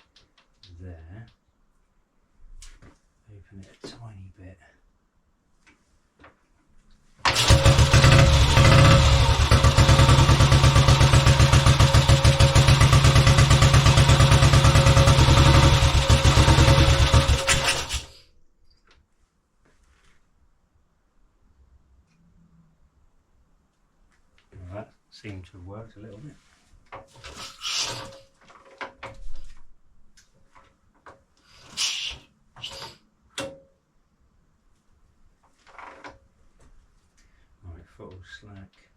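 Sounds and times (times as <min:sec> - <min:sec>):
single-cylinder motorcycle engine running: 0:07.3 - 0:18.1
short hissing rushes: 0:27.3 - 0:28.2, 0:31.4 - 0:33.0
clunks and knocks from handling motorcycle: 0:35.6 - 0:36.8.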